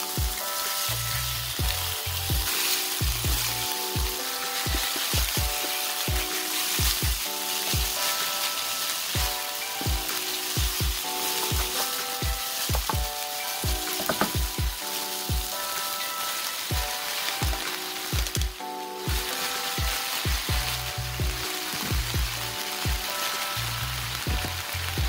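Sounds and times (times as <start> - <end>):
background music with drum beat: 0.0 - 25.0
meat sizzling in a frying pan: 0.0 - 25.0
wooden spatula stirring: 1.7 - 15.6.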